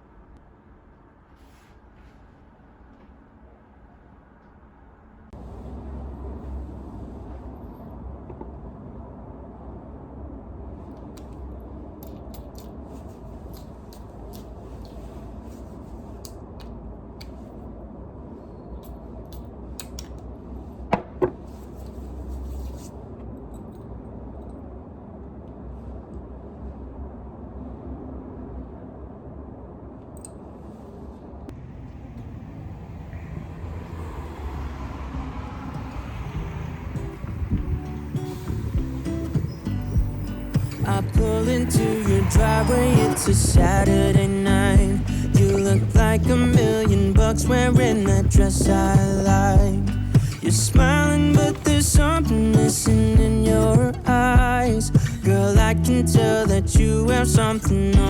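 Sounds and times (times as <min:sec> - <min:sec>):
steady low rumble: 0:02.2 - 0:58.0
music: 0:37.1 - 0:58.0.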